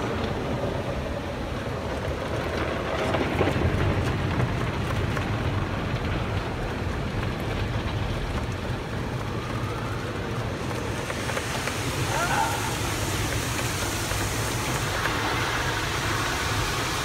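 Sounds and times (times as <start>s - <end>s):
car wash water spraying: 8.5s - 17.0s.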